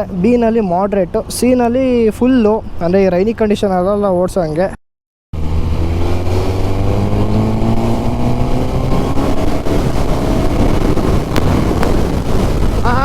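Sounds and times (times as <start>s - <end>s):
motorcycle engine accelerating: 5.4s - 12.8s.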